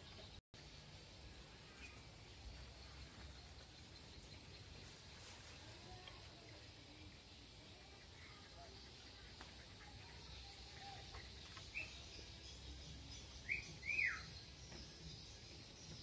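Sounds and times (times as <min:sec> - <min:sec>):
faint outdoor background noise: 0:00.0 - 0:16.0
small bird chirping: 0:07.8 - 0:16.0.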